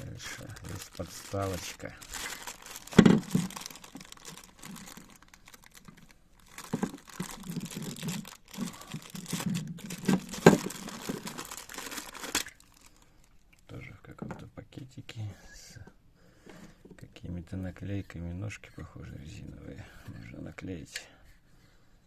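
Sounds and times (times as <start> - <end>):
plastic bag crinkling: 0.0 - 13.4.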